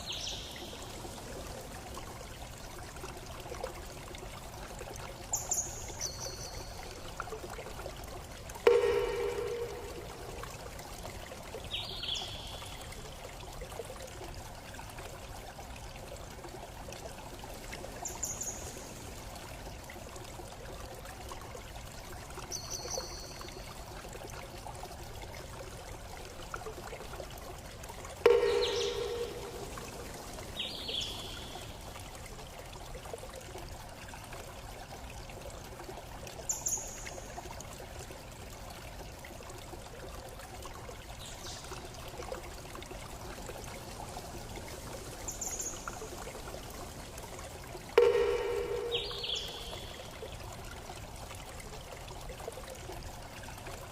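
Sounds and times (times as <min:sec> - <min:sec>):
trickling stream: 0:00.0 - 0:53.9
bird chirps: 0:28.3 - 0:31.6, 0:48.0 - 0:50.1.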